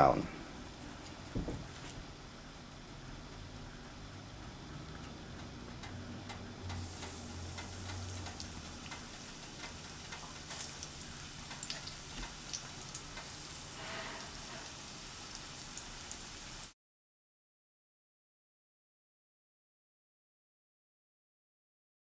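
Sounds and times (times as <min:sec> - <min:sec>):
chicken sizzling in hot oil: 0:02.1 - 0:16.8.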